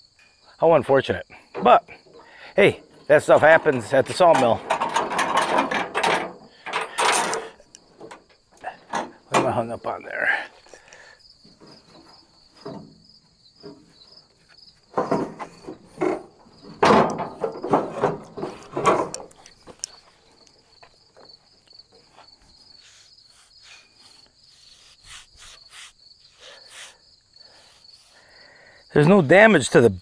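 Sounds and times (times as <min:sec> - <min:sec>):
insects chirping: 0:00.0 - 0:30.0
clattering and knocks of parts: 0:01.4 - 0:22.3.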